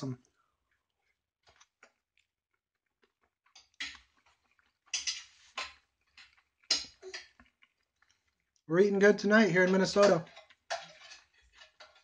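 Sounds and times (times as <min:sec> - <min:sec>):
person chewing steak: 0:00.6 - 0:08.7
noisy chewing bursts: 0:06.2 - 0:08.7.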